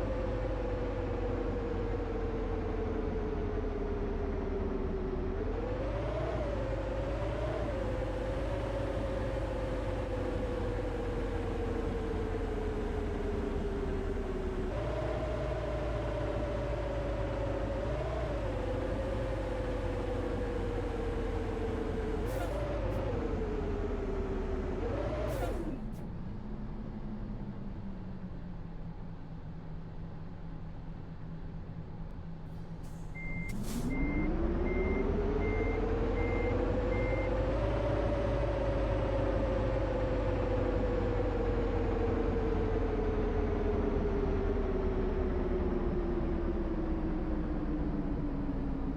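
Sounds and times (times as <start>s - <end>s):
bus engine and road rumble: 0.0s - 48.9s
bus whine: 0.0s - 48.9s
bus engine idling: 25.3s - 37.4s
air brake hiss: 32.9s - 34.0s.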